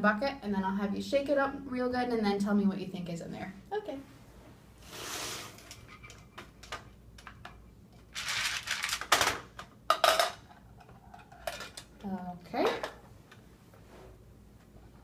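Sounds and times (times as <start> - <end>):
objects rattling in shaken bucket: 8.1 - 9.4.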